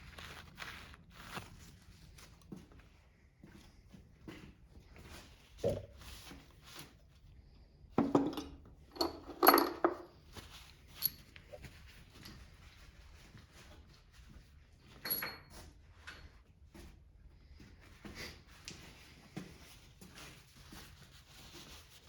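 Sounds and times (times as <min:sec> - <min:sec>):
metal tools clanking on workbench: 0:08.0 - 0:10.1.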